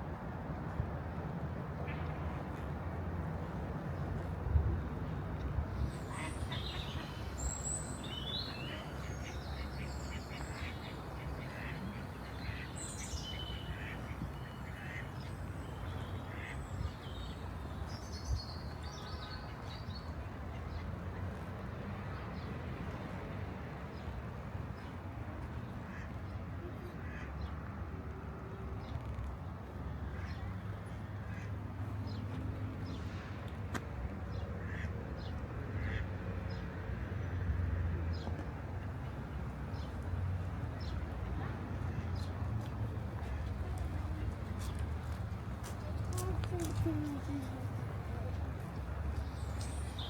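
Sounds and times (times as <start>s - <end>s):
birds calling: 5.8s - 19.5s.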